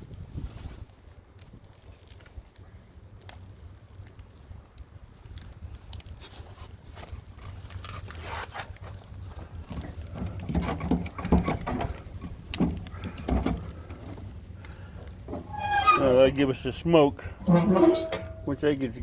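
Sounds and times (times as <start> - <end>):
wind rumbling on microphone: 0.0 - 7.4
wood knocking and scraping: 9.7 - 14.3.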